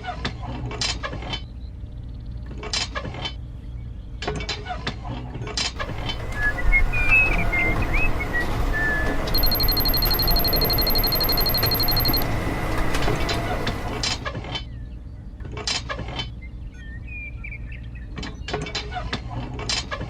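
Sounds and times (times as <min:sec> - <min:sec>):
high-pitched electronic trill: 0:09.3 - 0:12.2.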